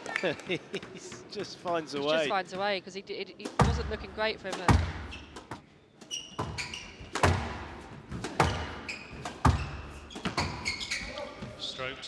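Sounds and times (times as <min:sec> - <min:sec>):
squash ball thuds: 0:03.4 - 0:05.7, 0:06.3 - 0:11.3
shoe squeaks: 0:03.5 - 0:12.0.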